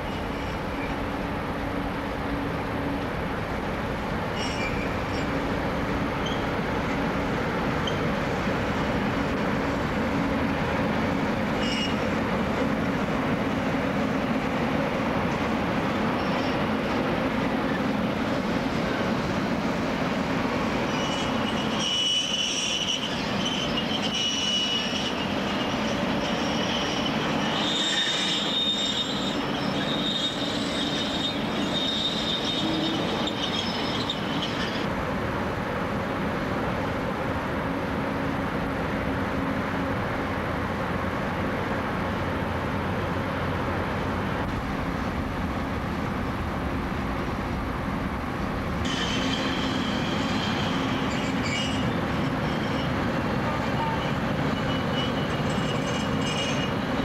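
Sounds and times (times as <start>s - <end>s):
train wheels squealing: 0.0s - 1.1s, 4.3s - 5.5s, 6.2s - 6.6s, 7.8s - 8.2s, 11.6s - 12.3s, 16.0s - 17.0s, 20.7s - 34.9s, 48.8s - 57.0s.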